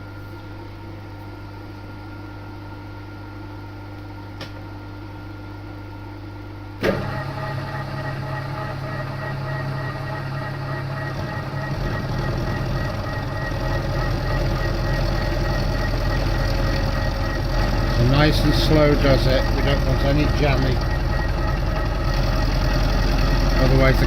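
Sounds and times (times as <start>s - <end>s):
machine starting jolt: 6.8s - 7.4s
milling machine gear whine: 6.8s - 24.0s.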